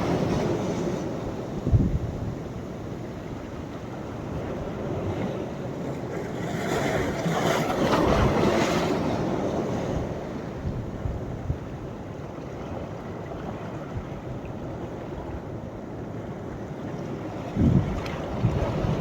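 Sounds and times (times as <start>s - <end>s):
wind gusts on microphone: 0.0s - 5.7s, 6.3s - 12.1s, 17.2s - 19.0s
sea waves breaking on shore: 0.0s - 19.0s.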